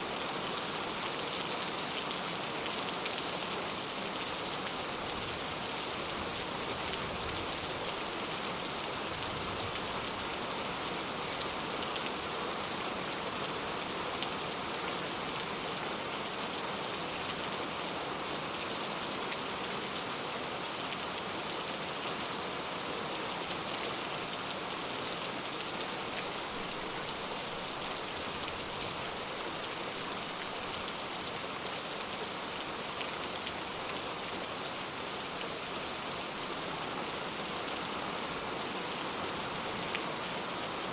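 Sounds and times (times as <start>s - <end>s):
steady rain patter: 0.0s - 40.9s.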